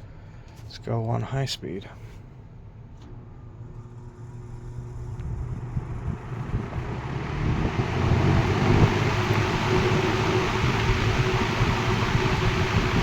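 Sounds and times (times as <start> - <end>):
fan motor hum: 1.9 - 13.0
rush of air from fan: 4.7 - 13.0.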